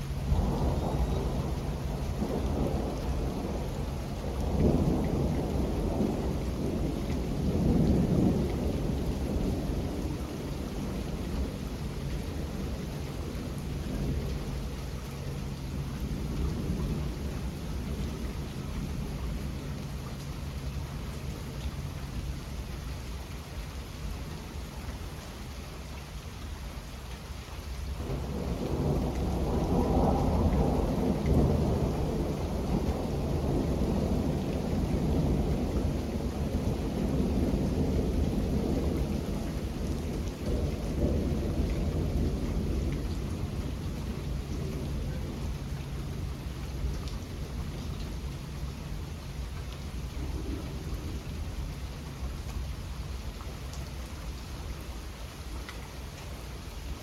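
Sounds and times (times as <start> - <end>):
thunder rumbling: 0.0 - 22.4, 27.9 - 55.2
steady rain: 0.0 - 57.0.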